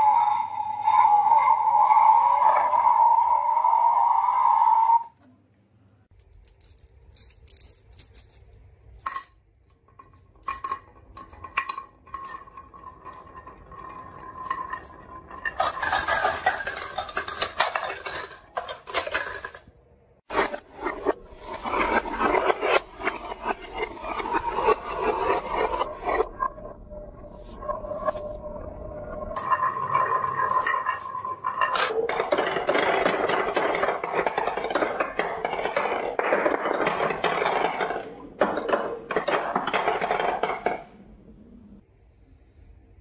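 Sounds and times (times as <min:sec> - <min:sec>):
marbles rolling down a track: 0:00.0 - 0:04.3, 0:09.0 - 0:19.7, 0:20.3 - 0:26.3, 0:29.2 - 0:40.9.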